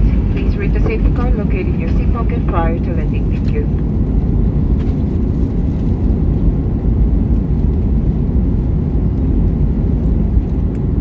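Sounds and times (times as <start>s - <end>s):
jet engines rumbling in cabin: 0.0s - 11.0s.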